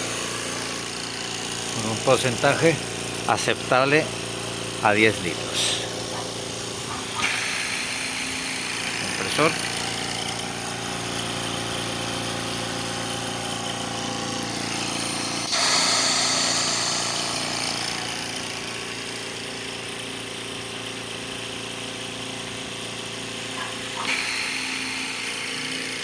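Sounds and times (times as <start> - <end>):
oxygen concentrator humming: 0.0 - 26.0.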